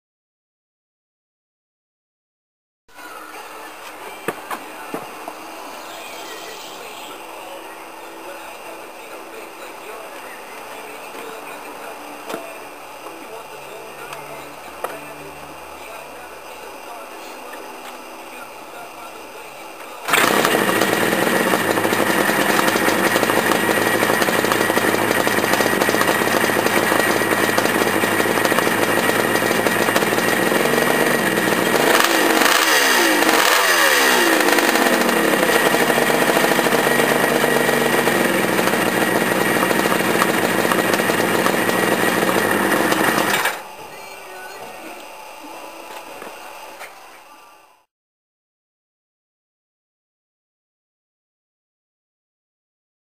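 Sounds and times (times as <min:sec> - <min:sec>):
motorcycle engine idling and revving: 0:20.1 - 0:43.6.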